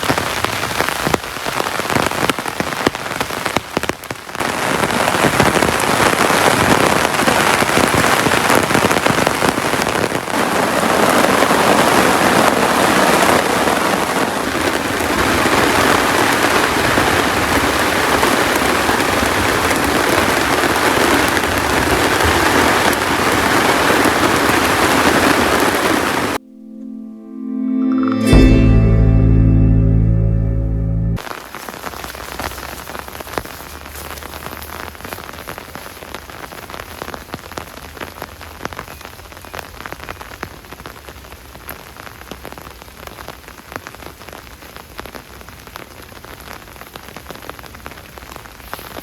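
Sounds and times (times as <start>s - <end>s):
heavy rain pouring: 0.0s - 26.4s, 29.9s - 49.0s.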